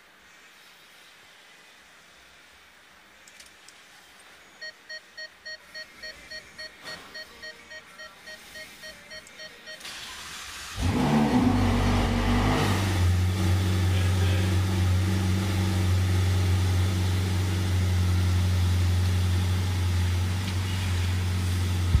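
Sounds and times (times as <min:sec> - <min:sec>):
car engine starting and idling: 0:09.7 - 0:22.0.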